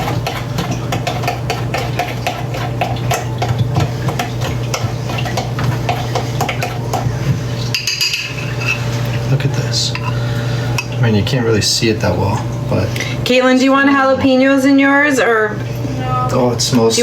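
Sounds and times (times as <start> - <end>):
utensil scraping in a bowl: 0.0 - 10.2.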